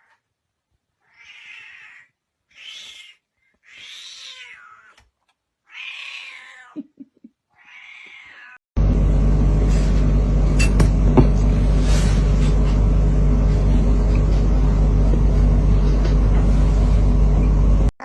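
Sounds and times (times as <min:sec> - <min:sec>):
cat meowing: 0:01.0 - 0:05.0, 0:05.6 - 0:06.8, 0:07.6 - 0:08.6.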